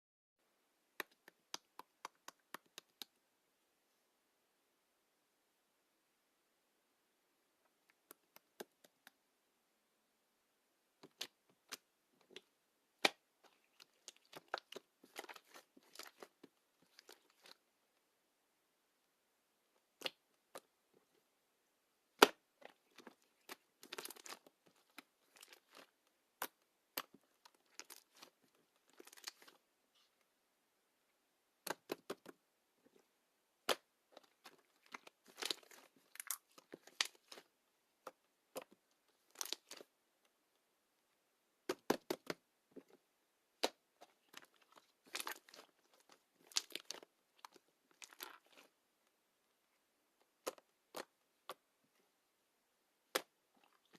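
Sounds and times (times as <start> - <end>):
slime squeezed and popping: 22.2 - 28.3, 33.6 - 37.4.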